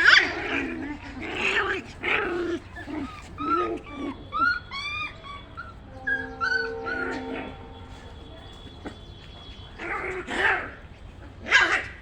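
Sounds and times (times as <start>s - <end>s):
puppy growling: 0.0s - 4.6s
puppy yipping and whimpering: 1.4s - 7.1s.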